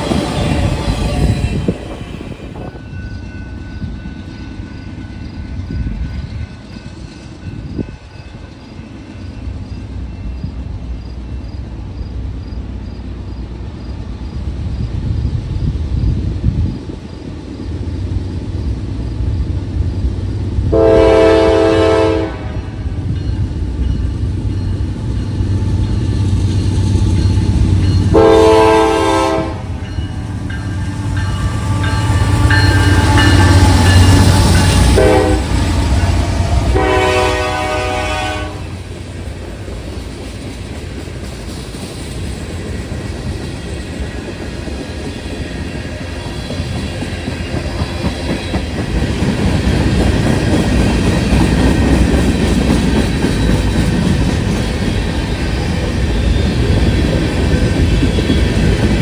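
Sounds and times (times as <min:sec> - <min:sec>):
train wheels clacking on rail joints: 0:00.0 - 0:10.6, 0:23.1 - 0:59.0
locomotive air horn: 0:20.7 - 0:22.9, 0:28.1 - 0:29.9, 0:31.2 - 0:34.1, 0:34.7 - 0:38.8.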